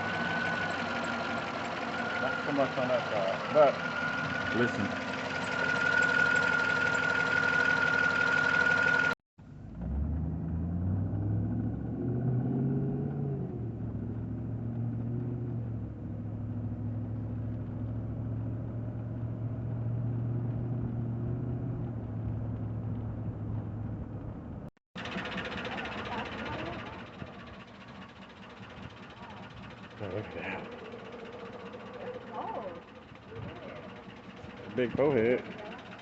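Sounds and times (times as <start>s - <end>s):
car engine idling: 0.0s - 9.8s, 13.0s - 20.8s, 21.9s - 36.0s.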